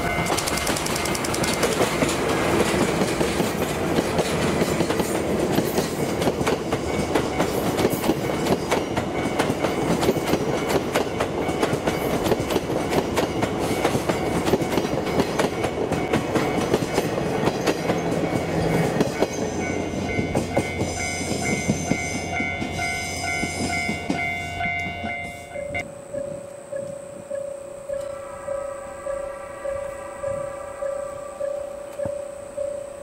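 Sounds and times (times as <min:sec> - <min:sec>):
train wheels clicking over rail joints: 0:00.0 - 0:25.2
steady tones: 0:15.5 - 0:33.0.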